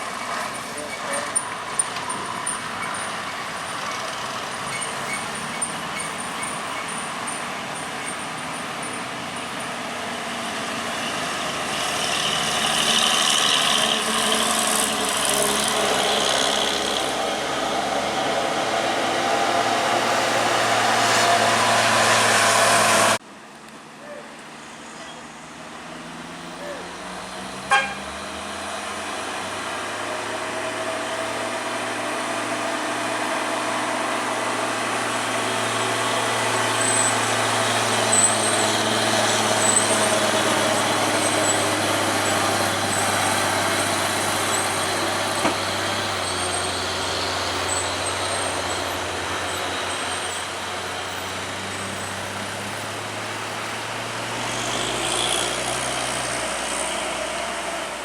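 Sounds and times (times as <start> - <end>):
faint high squeaks: 4.6 - 9.0.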